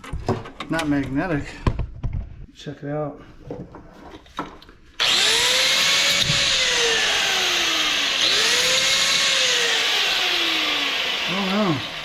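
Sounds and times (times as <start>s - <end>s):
power tool cutting metal: 5.0s - 12.0s.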